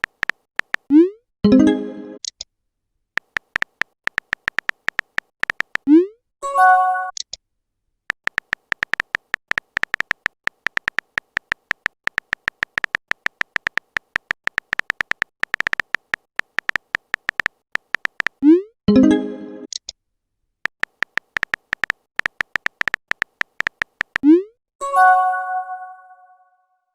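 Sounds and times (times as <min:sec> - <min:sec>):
rapid electronic clicks: 0:00.0 - 0:00.9, 0:03.2 - 0:05.9, 0:08.1 - 0:18.4, 0:20.6 - 0:24.3.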